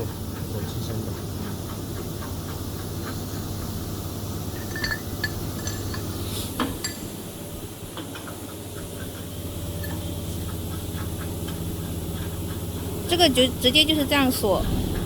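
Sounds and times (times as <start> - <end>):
metal hardware clinking: 4.5 - 7.2
low hum: 11.4 - 15.0.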